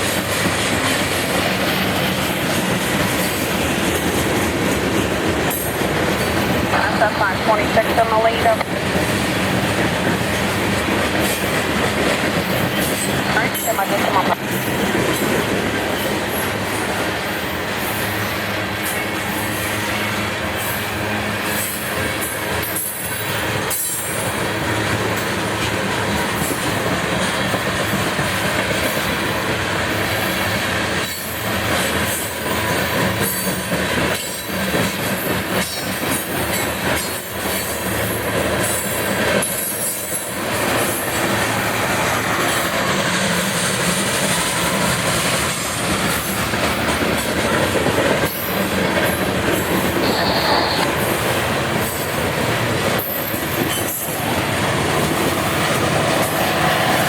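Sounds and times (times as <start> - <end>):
train wheels clacking over rails: 0.0 - 57.0
high wheel squeal: 50.0 - 51.1.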